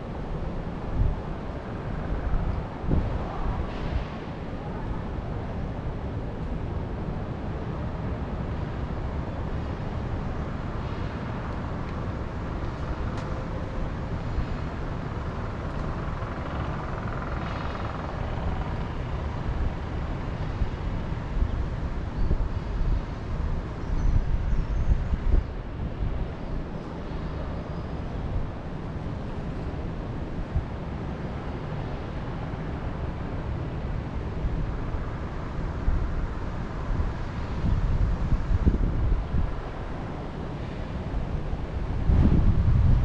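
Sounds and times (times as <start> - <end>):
wind blowing over microphone: 0.0 - 7.0, 20.6 - 31.0, 34.1 - 43.0.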